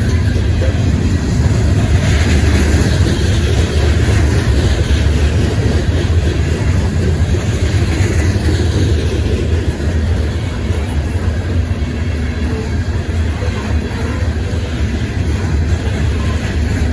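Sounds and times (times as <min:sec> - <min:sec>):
rail and wheel noise: 0:00.0 - 0:16.9
train rumbling past: 0:00.0 - 0:16.9.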